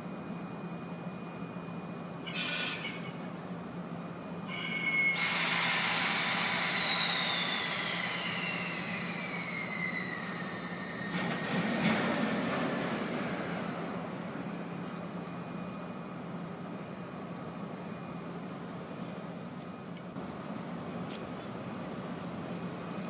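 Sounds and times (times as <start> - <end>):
freight train rolling: 0.0 - 23.0.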